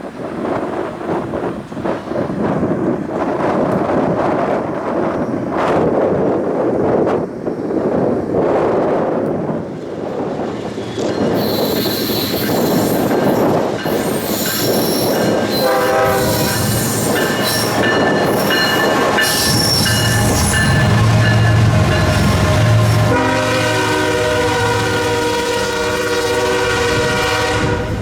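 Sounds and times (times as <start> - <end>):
wind buffeting microphone: 0.0 - 28.0
locomotive engine rumble: 9.7 - 28.0
train wheels squealing: 10.5 - 23.2
locomotive air horn: 15.3 - 17.0, 18.8 - 28.0.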